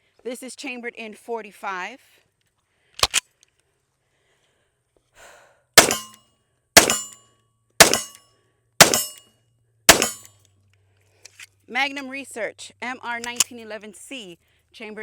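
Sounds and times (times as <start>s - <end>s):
pistol shots with metallic ring: 5.8s - 6.2s, 6.8s - 7.2s, 7.8s - 8.2s, 8.8s - 9.3s, 9.9s - 10.3s.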